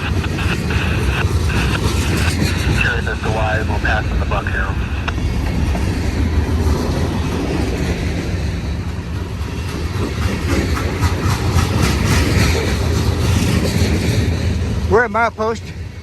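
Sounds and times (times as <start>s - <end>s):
freight train rumbling past: 0.0s - 16.0s
train wheel clicks: 9.1s - 14.5s.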